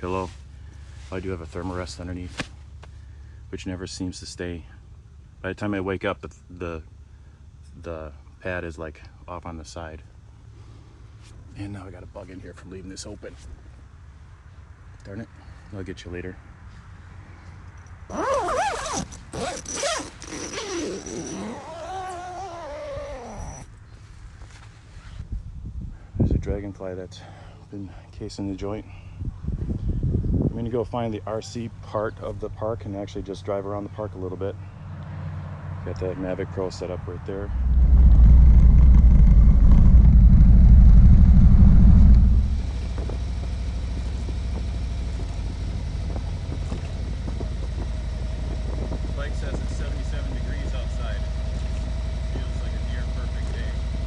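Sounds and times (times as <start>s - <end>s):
tent zipper being pulled: 18.1s - 23.7s
motorcycle engine rumbling: 36.0s - 54.0s.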